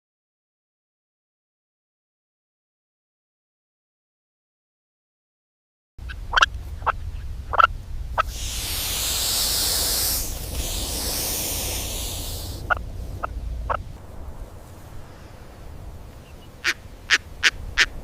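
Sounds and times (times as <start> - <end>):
bird sharp calls: 6.0 - 13.9, 15.0 - 18.0
low rumble: 6.0 - 18.0
loud high hiss: 7.9 - 18.0.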